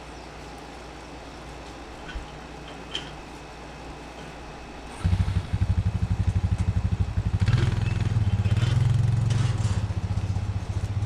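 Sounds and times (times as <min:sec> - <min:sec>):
small engine running: 0:04.9 - 0:11.0
clatter: 0:07.4 - 0:11.0.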